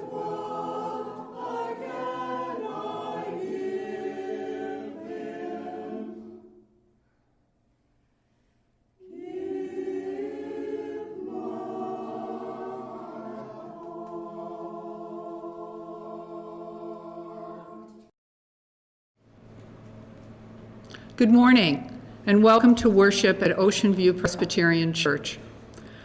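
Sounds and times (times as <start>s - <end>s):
choir singing held chords: 0.0s - 6.9s, 9.0s - 18.1s.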